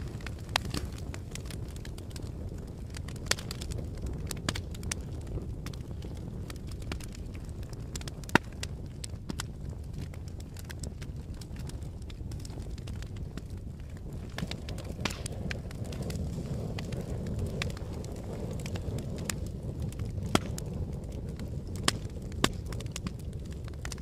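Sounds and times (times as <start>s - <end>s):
fire crackling and popping: 0.0s - 24.0s.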